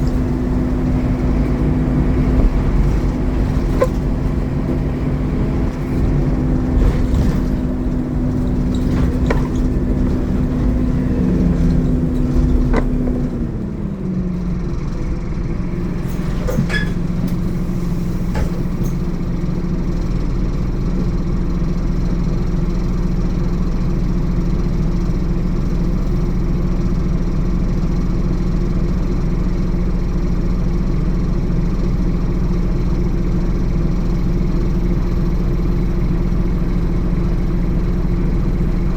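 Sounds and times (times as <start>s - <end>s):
rattles and clicks: 0.0s - 14.2s
bus diesel engine running: 0.0s - 38.9s.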